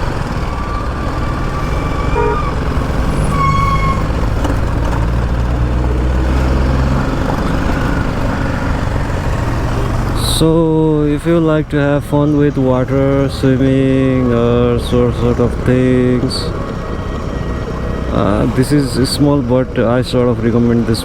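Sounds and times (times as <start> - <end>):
vehicle horn: 0.0 - 4.2
motorcycle engine and road rumble: 0.0 - 21.0.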